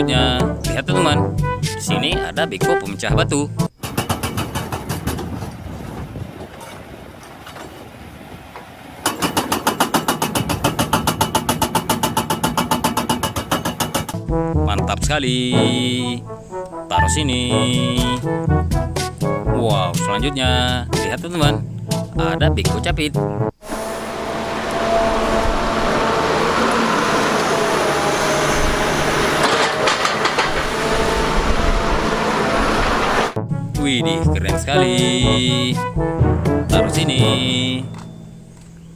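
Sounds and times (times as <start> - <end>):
machine engine noise: 23.6 - 33.4
clattering clicks: 29.4 - 30.8.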